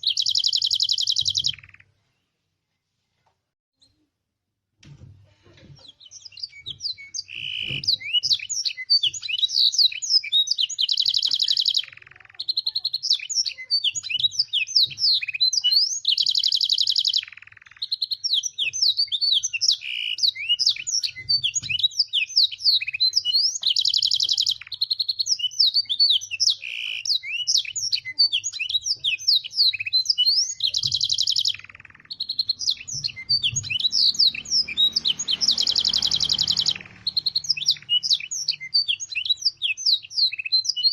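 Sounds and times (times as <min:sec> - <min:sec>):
canary singing: 0:00.0 - 0:02.0, 0:05.8 - 0:40.9.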